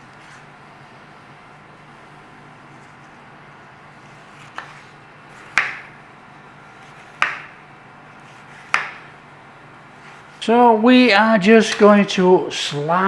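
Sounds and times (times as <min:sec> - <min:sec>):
extractor fan humming: 0:00.0 - 0:13.0
knife chopping on cutting board: 0:04.0 - 0:07.6, 0:08.2 - 0:09.2.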